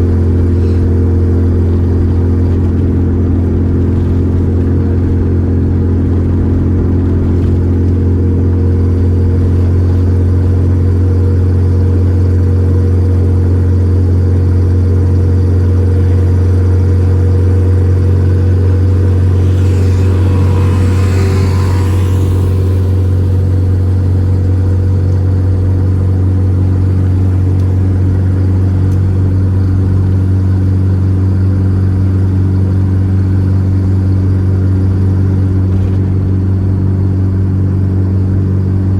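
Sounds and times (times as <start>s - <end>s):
car engine droning: 0.0s - 38.9s
rush of hiss-like noise: 18.2s - 24.5s.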